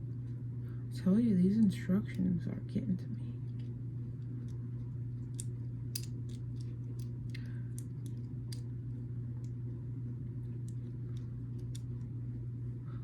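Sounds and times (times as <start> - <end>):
steady low hum: 0.0 - 13.0
plastic bricks clicking: 5.4 - 8.6.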